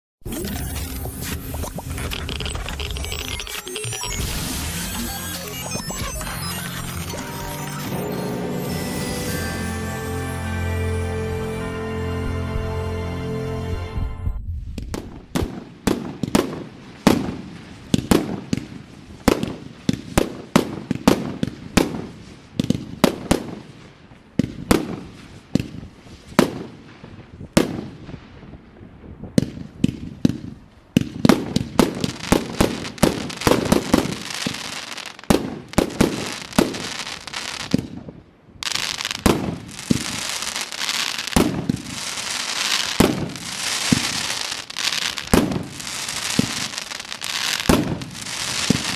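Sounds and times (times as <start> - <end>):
fireworks crackling: 0.5 - 12.8, 14.4 - 48.9
fireworks shell bursts: 38.6 - 48.9.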